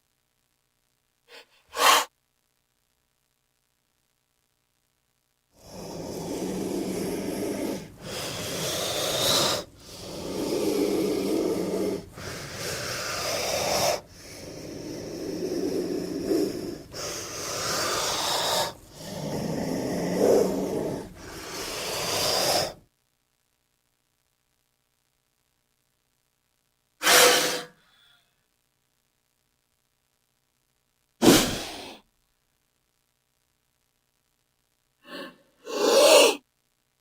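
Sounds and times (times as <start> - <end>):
snake hissing: 1.3 - 2.1, 5.6 - 22.8, 27.0 - 27.8, 31.2 - 32.0, 35.0 - 36.4.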